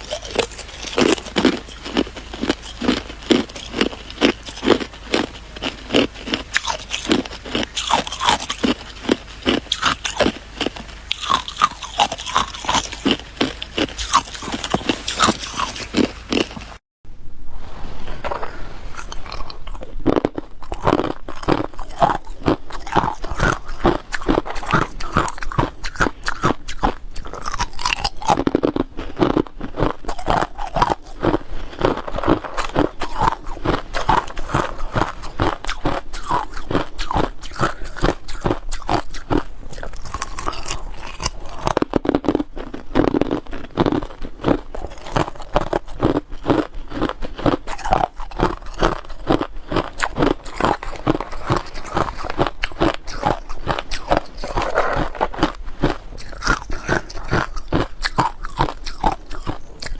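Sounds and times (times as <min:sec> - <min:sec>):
person crunching ice: 0:00.0 - 0:16.8, 0:18.0 - 0:59.9.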